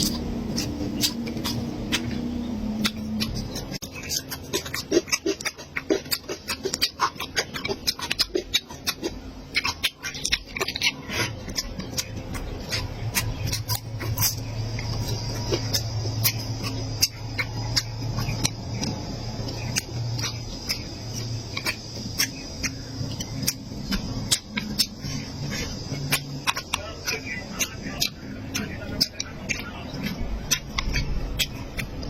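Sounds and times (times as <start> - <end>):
chewing and mouth clicks: 0.0 - 32.0.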